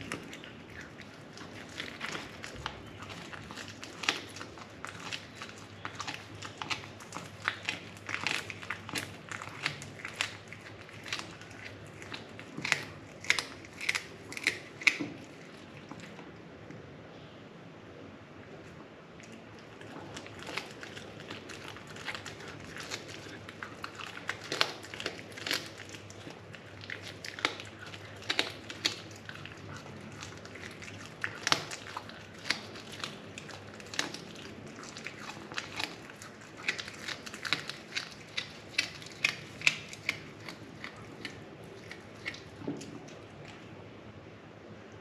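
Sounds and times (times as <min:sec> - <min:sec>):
cat crunching on bird: 0:00.0 - 0:16.8, 0:18.4 - 0:43.8.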